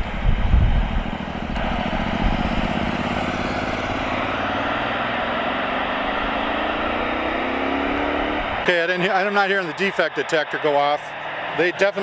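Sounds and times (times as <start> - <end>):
freight train rolling past: 0.0 - 12.0
rising engine tones: 0.0 - 12.0.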